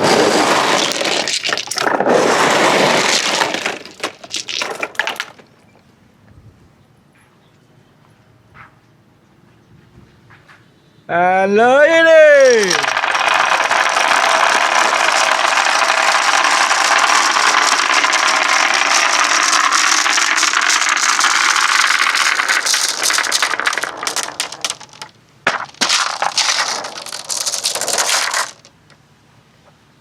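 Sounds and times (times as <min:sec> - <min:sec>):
glass marbles rattling down wooden track: 0:00.0 - 0:05.6, 0:12.2 - 0:29.0.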